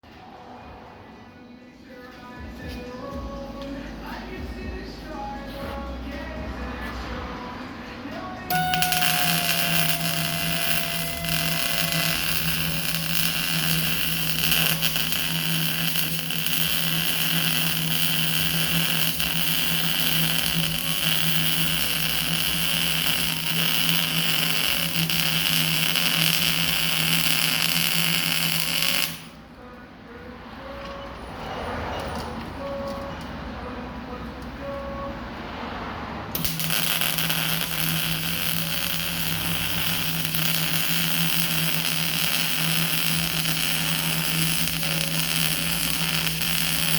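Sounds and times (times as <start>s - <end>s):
metalworking machine humming: 8.5s - 29.3s, 36.4s - 46.9s.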